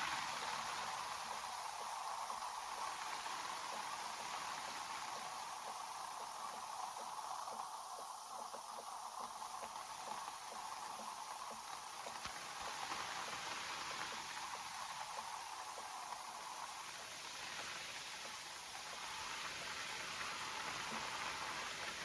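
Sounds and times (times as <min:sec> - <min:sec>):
rain on leaves: 0:09.2 - 0:22.0.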